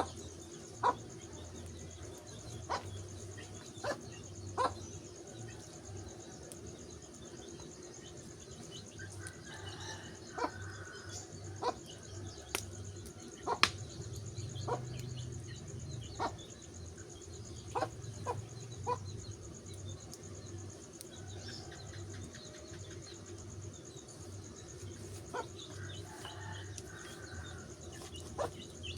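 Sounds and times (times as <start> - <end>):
high insect drone: 0.0 - 28.9
wood fire crackling and popping: 12.4 - 14.3, 24.6 - 28.4.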